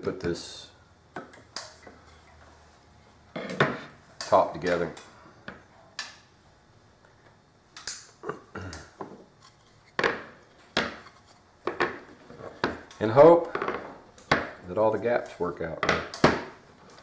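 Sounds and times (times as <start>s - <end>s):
pieces knocking on workbench: 10.0s - 12.8s, 13.5s - 14.6s, 15.8s - 16.6s.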